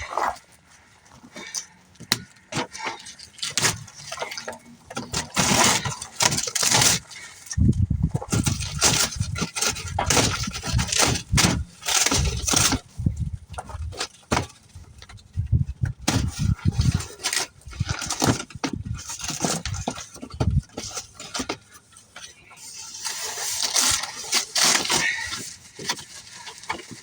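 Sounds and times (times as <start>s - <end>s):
box being pried open and unpacked: 2.0s - 7.1s, 8.1s - 14.6s, 15.8s - 21.7s, 23.0s - 27.0s
handling rumble on microphone: 7.6s - 14.0s, 14.8s - 20.8s.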